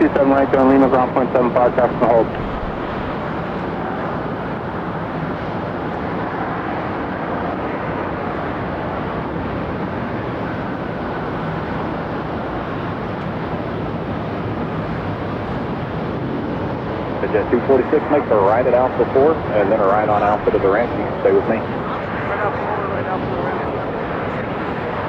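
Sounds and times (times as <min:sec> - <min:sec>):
jet engine roar: 0:00.0 - 0:25.0.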